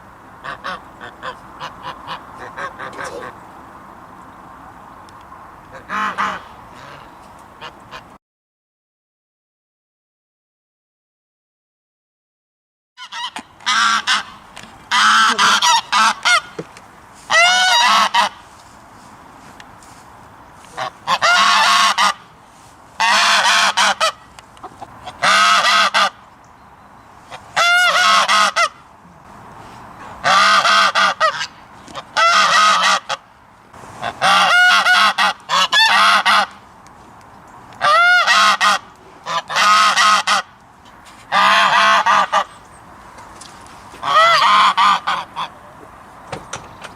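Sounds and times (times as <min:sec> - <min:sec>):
geese honking: 0:00.0 - 0:03.4, 0:05.7 - 0:08.1, 0:13.0 - 0:18.6, 0:20.6 - 0:26.2, 0:27.2 - 0:28.9, 0:30.0 - 0:33.3, 0:33.9 - 0:36.6, 0:37.8 - 0:40.6, 0:41.3 - 0:42.6, 0:44.0 - 0:45.8.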